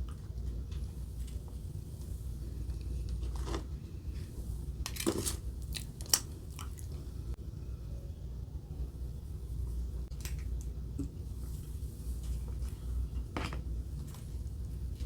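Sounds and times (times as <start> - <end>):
person chewing crunchy food: 5.1 - 7.0.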